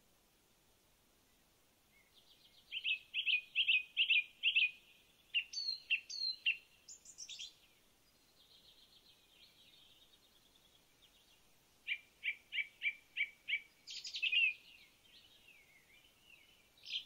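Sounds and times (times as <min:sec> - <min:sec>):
songbird singing: 0:01.2 - 0:17.0.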